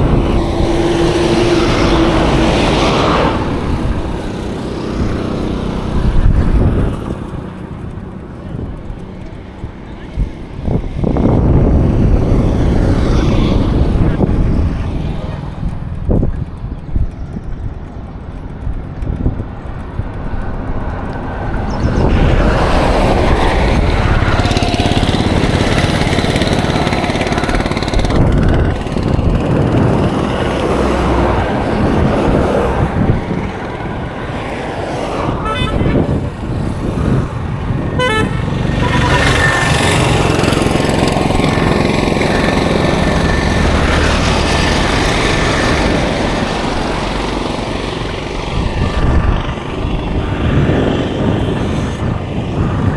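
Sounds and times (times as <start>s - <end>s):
road traffic passing: 0.0s - 52.9s
car horns tooting: 35.2s - 41.7s.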